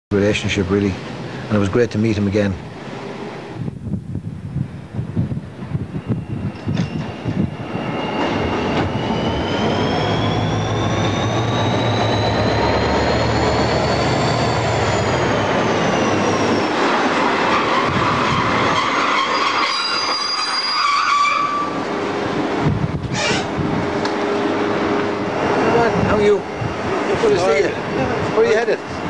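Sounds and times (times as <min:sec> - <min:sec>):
diesel locomotive engine hum: 0:00.1 - 0:29.0
high squeal from coaches: 0:05.9 - 0:21.9, 0:23.1 - 0:23.5.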